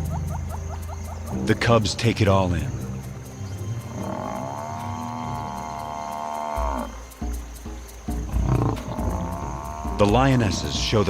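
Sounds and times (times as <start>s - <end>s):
buffalo bellowing in distress: 3.9s - 7.1s, 8.3s - 11.0s.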